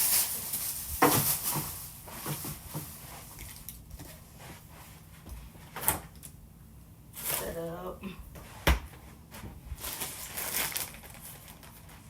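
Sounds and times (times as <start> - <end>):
items knocking into bag: 0.0 - 3.0.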